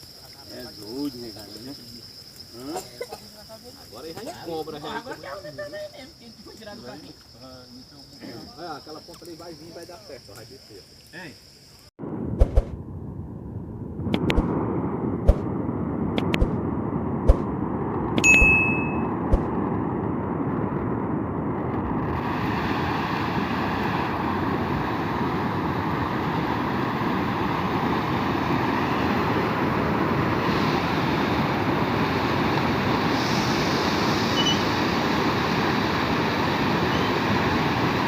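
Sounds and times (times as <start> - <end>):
wind: 0.0 - 38.0
pouring rain: 22.2 - 38.0.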